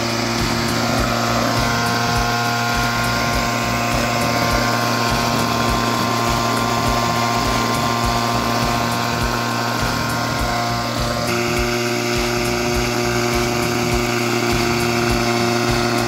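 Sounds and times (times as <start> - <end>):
small petrol engine running: 0.0 - 16.0.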